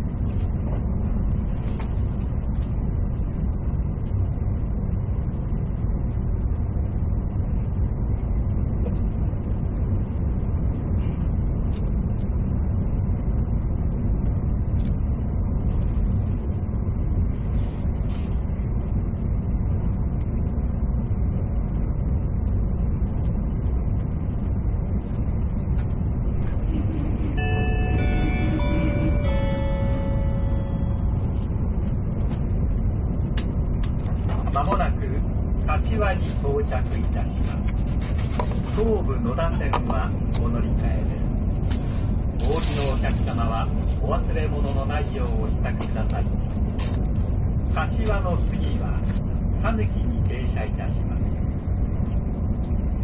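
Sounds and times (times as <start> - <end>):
electric train rumbling: 0.0 - 53.0
announcement chime melody: 27.3 - 31.4.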